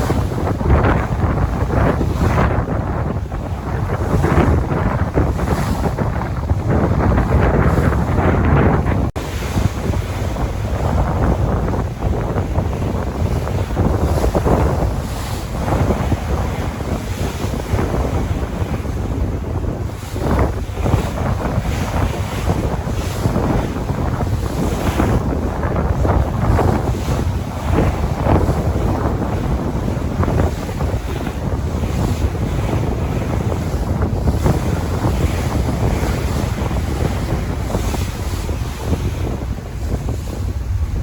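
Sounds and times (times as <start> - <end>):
sea waves washing: 0.0 - 41.0
wind buffeting microphone: 0.0 - 41.0.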